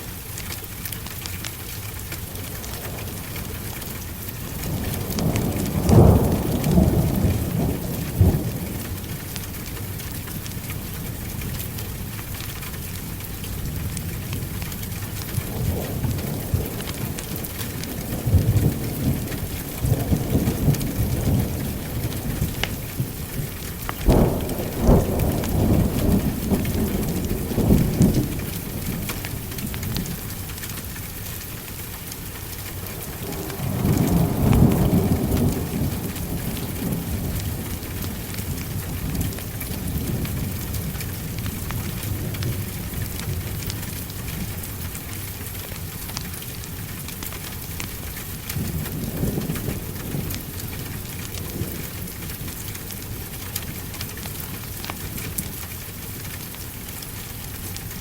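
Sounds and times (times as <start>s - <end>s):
heavy rain falling: 0.0s - 58.0s
thunder rumbling: 2.2s - 12.2s, 13.1s - 31.0s, 32.2s - 45.0s, 48.0s - 55.6s
sharp thunder cracks: 32.9s - 40.8s.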